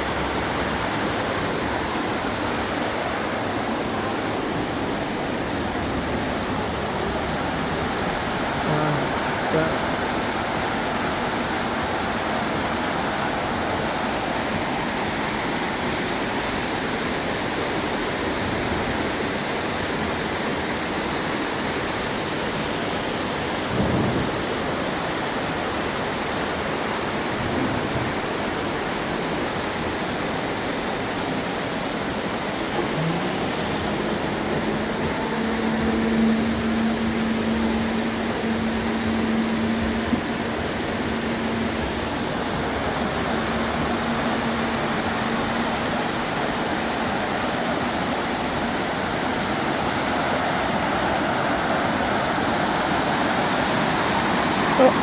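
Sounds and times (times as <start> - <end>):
waterfall roaring: 0.0 - 55.0
low hum: 32.5 - 46.7.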